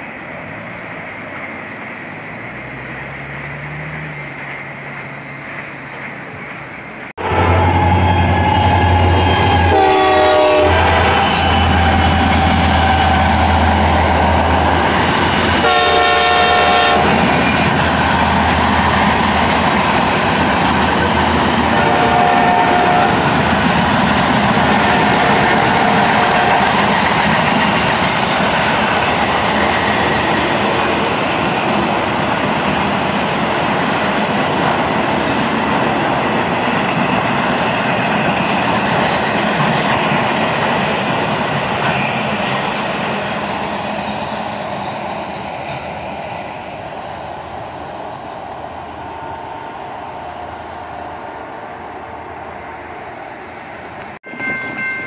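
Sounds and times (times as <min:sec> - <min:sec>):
freight cars rumbling: 0:00.0 - 0:54.8
diesel locomotive engine drone: 0:00.0 - 0:55.0
train horn blasts: 0:07.2 - 0:14.5, 0:15.5 - 0:17.5, 0:21.6 - 0:23.4, 0:24.6 - 0:27.1
wheels clacking over rail joints: 0:07.7 - 0:50.4.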